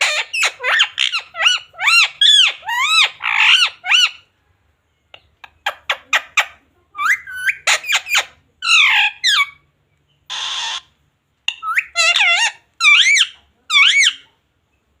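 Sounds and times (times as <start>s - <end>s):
parrot squawking: 0.0s - 4.3s, 5.6s - 9.6s, 10.3s - 14.3s
parrot hissing: 10.3s - 10.9s.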